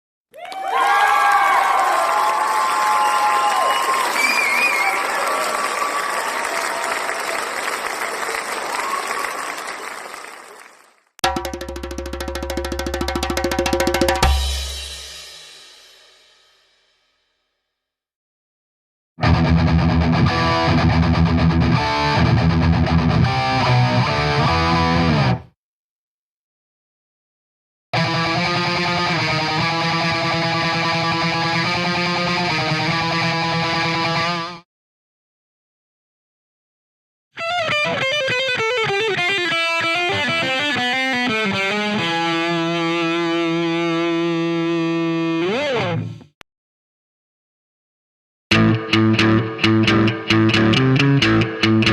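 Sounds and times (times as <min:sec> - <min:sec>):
rock music with electric guitar: 0:19.2 - 0:25.5, 0:28.0 - 0:34.6, 0:37.4 - 0:46.2, 0:48.5 - 0:51.9.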